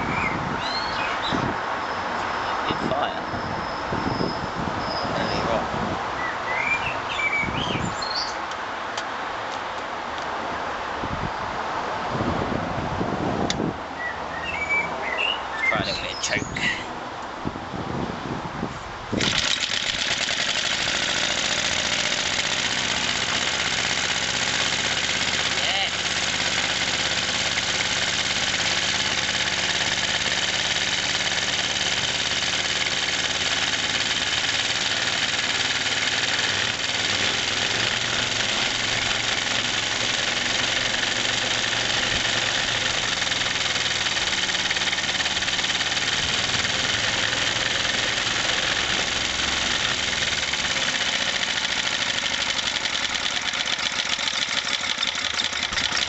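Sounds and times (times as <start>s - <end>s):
single-cylinder engine running: 19.2s - 56.0s.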